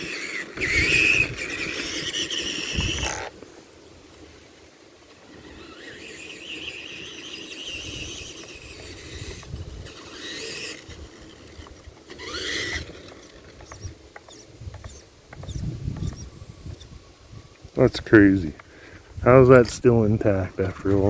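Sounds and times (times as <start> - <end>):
toy truck electric motor whining: 0.0 - 3.4, 4.1 - 17.0.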